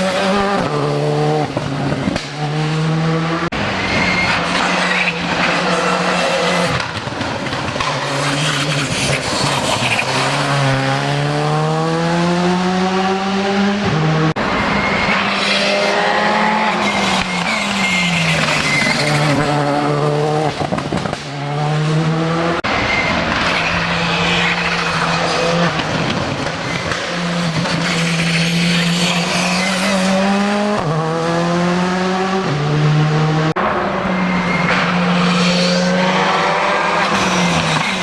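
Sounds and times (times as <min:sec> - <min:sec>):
rally car engine revving: 0:00.0 - 0:38.0
tyre squeal: 0:03.6 - 0:06.9, 0:07.8 - 0:11.1, 0:14.4 - 0:20.0, 0:22.6 - 0:30.8, 0:33.6 - 0:38.0.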